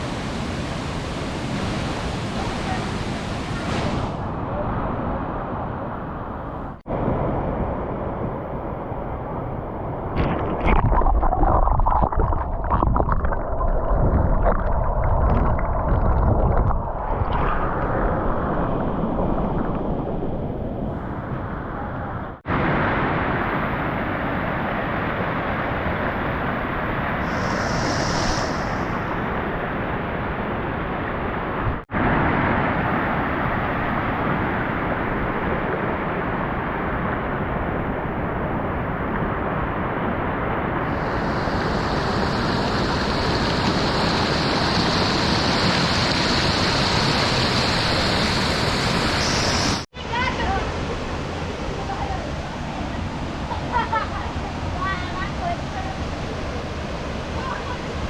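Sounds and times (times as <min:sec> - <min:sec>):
waterfall rushing: 0:40.8 - 0:49.9.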